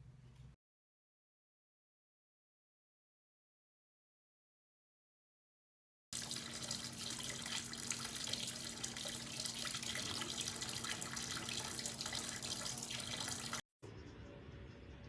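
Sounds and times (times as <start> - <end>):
running water rushing: 6.2 - 13.6
faint low hum: 6.2 - 15.0.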